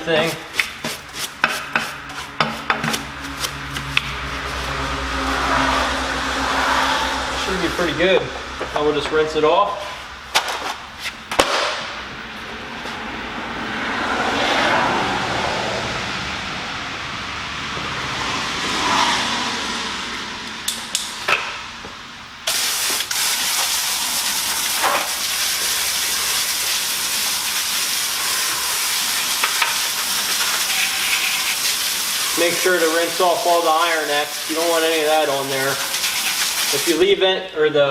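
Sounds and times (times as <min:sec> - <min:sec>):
rushing noise: 0:00.0 - 0:37.1
pressure washer spray hissing: 0:22.4 - 0:37.1.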